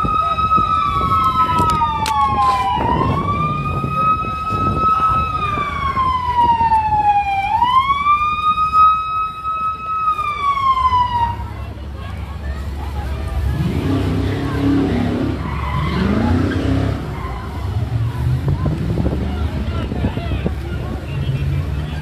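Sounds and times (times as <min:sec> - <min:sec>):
police siren wailing: 0:00.0 - 0:11.9, 0:13.3 - 0:18.2.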